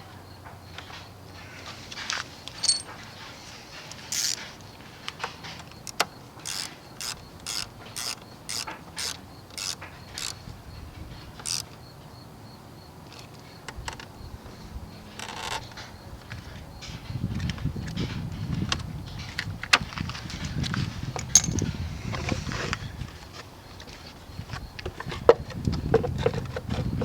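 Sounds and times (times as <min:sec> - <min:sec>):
tools clicking and tapping: 0:01.9 - 0:03.1, 0:21.2 - 0:21.7
ratchet wrench strokes: 0:04.1 - 0:04.5, 0:06.4 - 0:10.4, 0:11.4 - 0:11.7.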